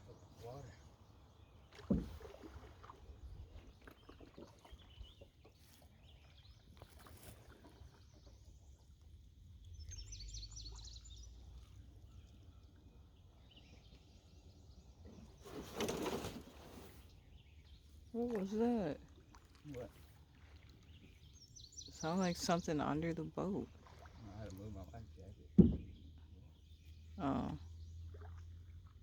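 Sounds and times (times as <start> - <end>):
stream ambience: 0.0 - 29.0
bump under canoe: 1.6 - 5.6, 15.1 - 17.1, 25.4 - 26.3.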